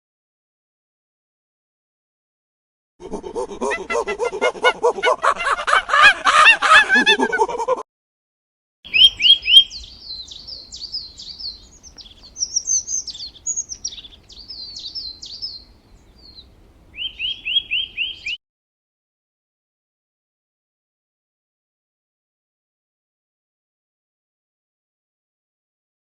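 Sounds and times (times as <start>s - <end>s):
pitched animal call: 3.0s - 7.8s
small bird chirping: 8.9s - 18.4s.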